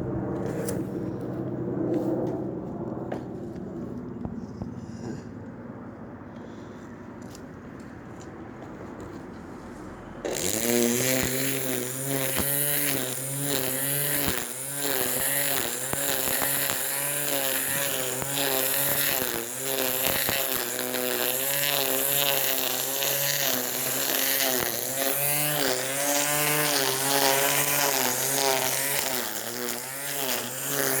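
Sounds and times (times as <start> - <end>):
grass cutter engine running: 10.2 - 31.0.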